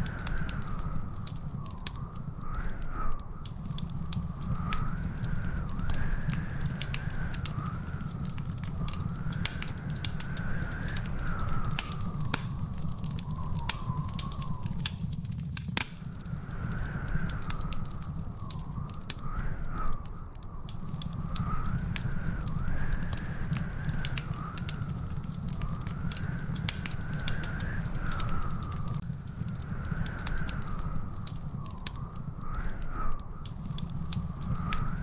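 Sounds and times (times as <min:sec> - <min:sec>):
wood fire crackling and popping: 0:00.0 - 0:35.0
thin wavering high whistle: 0:11.1 - 0:14.8.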